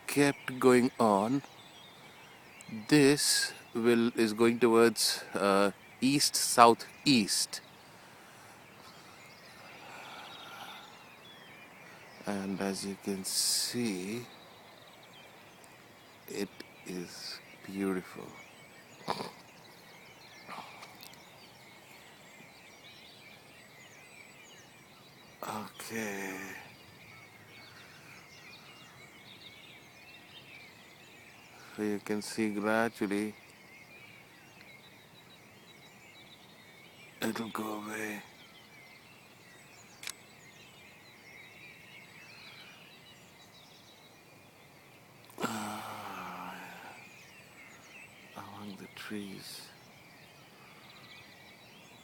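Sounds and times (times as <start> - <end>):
man speaking: 0.0 - 1.4, 2.7 - 7.6, 12.2 - 14.3, 16.3 - 18.4, 25.4 - 26.7, 37.2 - 38.2, 48.4 - 49.7
faint birdsong chirps: 0.0 - 52.0
low background noise: 0.0 - 52.0
sharp click: 40.0 - 40.2.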